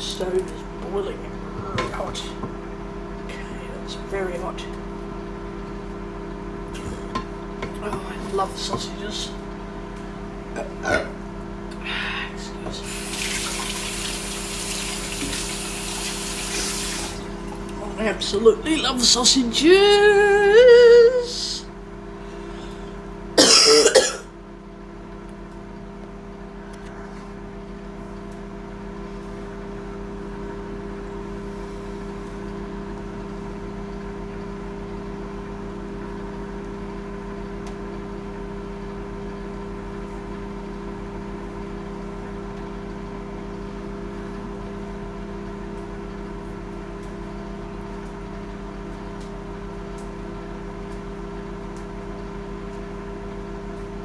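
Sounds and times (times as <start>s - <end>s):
kitchen appliance humming: 0.0s - 24.2s
person coughing: 10.6s - 11.2s, 23.4s - 24.3s.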